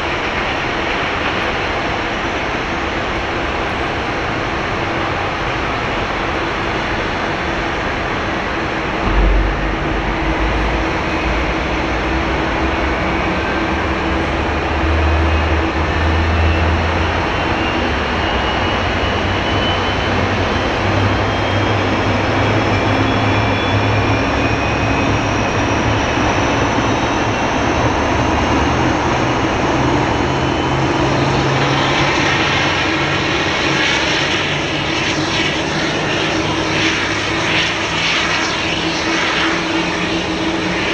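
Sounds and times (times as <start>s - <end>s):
jet engines whining: 0.0s - 40.9s
low rumble: 8.6s - 17.1s.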